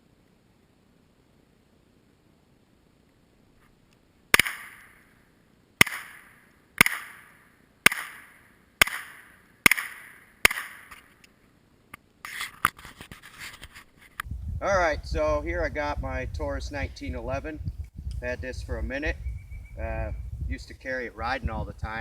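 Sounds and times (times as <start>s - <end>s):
gunshots with echo: 4.3s - 5.1s, 5.8s - 11.0s.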